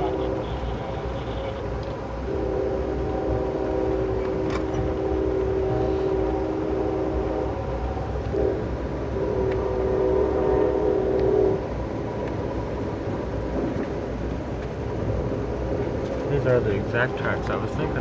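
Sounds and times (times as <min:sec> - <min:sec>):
locomotive horn blasts: 0:00.0 - 0:11.7
moving train rumble: 0:00.0 - 0:18.0.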